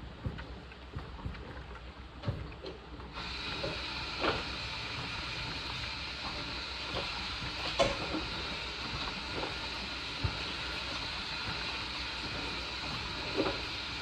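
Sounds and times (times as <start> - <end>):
washing machine clicks and knocks: 7.5 - 8.3.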